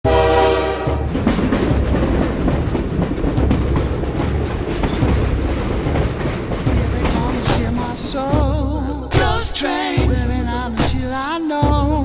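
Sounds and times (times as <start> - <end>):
train whistle: 0.0 - 1.1
train running rumble: 0.1 - 12.0
wheels clattering on rails: 0.4 - 9.6.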